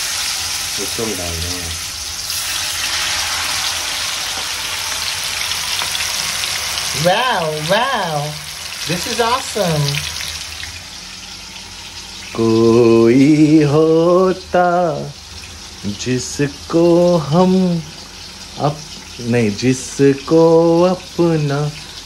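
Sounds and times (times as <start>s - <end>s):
chicken sizzling in hot oil: 0.0s - 22.0s
person singing: 12.3s - 15.2s, 15.8s - 17.9s, 18.6s - 21.8s.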